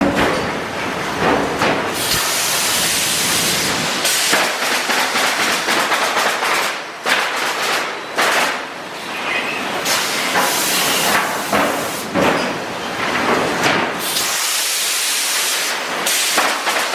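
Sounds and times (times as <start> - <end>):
nailer hissing: 1.9 - 8.6, 9.8 - 12.2, 14.0 - 16.9
nailer firing strikes: 4.1 - 8.6.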